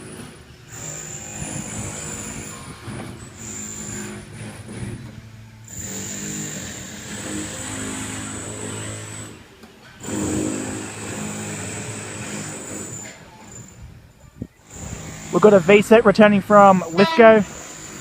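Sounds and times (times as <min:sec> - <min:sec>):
high machine whine: 0:00.0 - 0:09.5.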